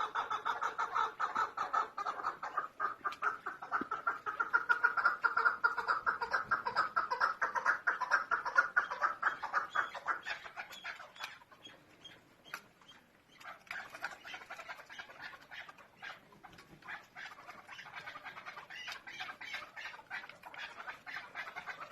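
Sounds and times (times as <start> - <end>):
partridge calling: 0.0 - 21.9.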